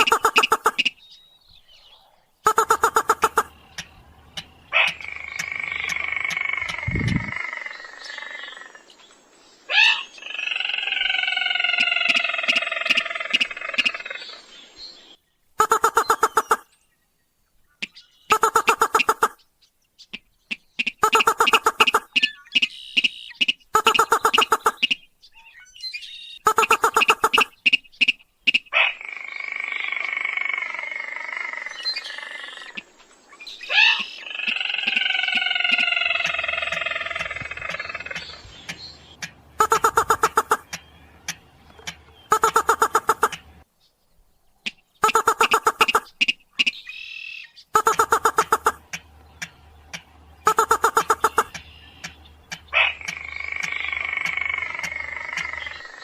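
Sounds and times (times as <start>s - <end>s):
recorded crake calls: 0.0s - 1.0s, 2.4s - 8.9s, 9.7s - 14.4s, 15.6s - 16.7s, 17.8s - 19.4s, 20.1s - 25.1s, 26.4s - 32.8s, 33.7s - 43.6s, 44.6s - 56.0s
rail bird trilling calls: 33.6s - 43.6s, 44.7s - 56.0s
sharp ticks: 35.7s - 43.5s, 47.8s - 55.6s.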